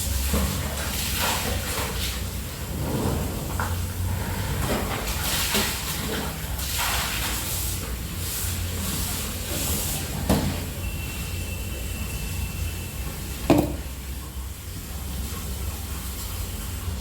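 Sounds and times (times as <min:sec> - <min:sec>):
water swishing and splashing: 0:00.0 - 0:10.8
light knock: 0:13.5 - 0:13.8.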